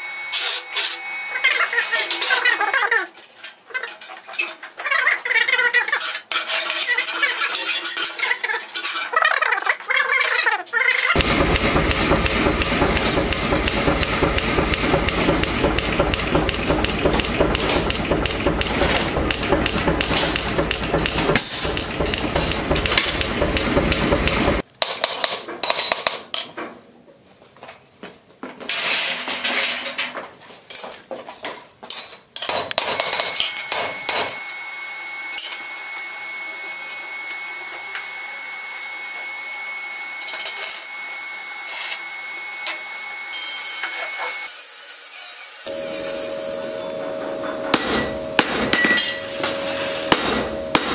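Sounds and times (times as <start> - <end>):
high-pitched hum: 0.0 - 2.2, 11.2 - 24.6, 45.7 - 50.9
rapid hammering on metal: 11.2 - 25.1, 47.6 - 49.1, 50.1 - 50.9.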